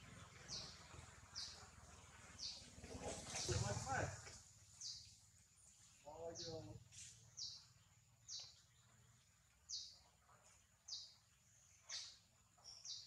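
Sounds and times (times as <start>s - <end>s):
bird chirping: 0.3s - 3.6s, 4.6s - 5.2s, 6.1s - 13.0s.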